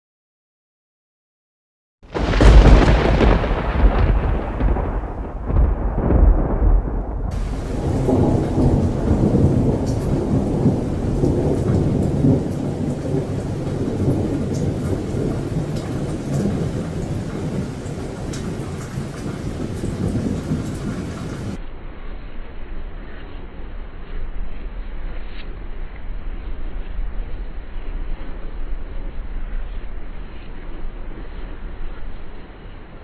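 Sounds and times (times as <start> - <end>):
rain falling steadily: 2.0 - 21.6
raindrops ticking close by: 2.1 - 21.6
thunder rumbling: 2.1 - 21.6.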